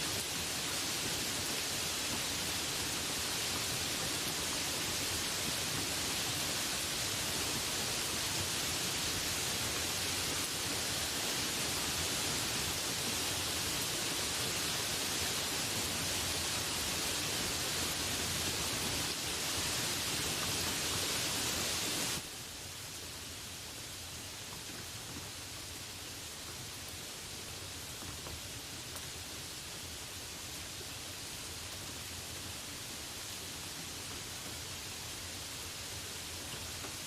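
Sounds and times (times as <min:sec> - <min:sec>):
steady rain hiss: 0:00.0 - 0:37.0.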